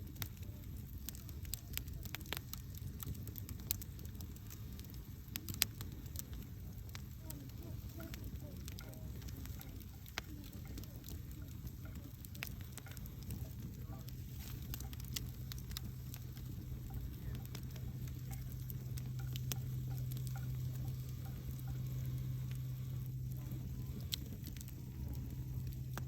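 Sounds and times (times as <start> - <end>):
campfire crackling and popping: 0.0 - 26.0
low hum: 0.2 - 26.0.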